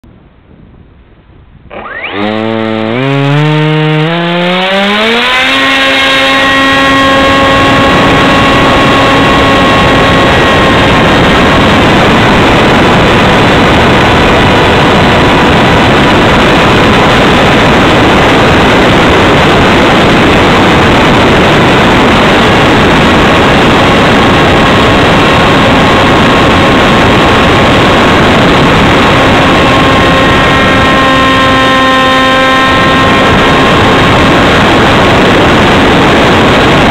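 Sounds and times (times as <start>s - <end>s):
wind rushing over microphone: 0.0s - 36.9s
model plane motor whining: 1.7s - 12.3s, 29.0s - 35.0s.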